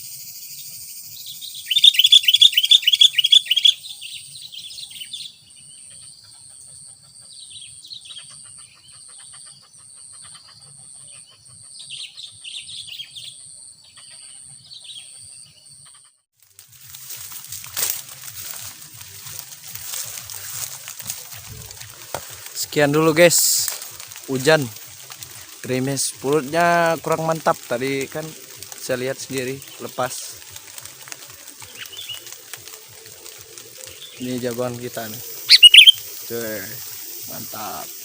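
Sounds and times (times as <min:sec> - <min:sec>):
birds chirping: 0:00.0 - 0:16.2, 0:17.0 - 0:38.0
light rain hiss: 0:16.4 - 0:38.0.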